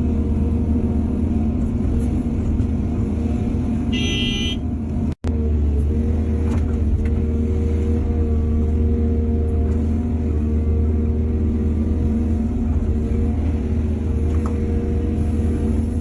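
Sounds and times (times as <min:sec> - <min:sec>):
excavator diesel engine running: 0:00.0 - 0:16.0
high-pitched horn beep: 0:03.9 - 0:04.6.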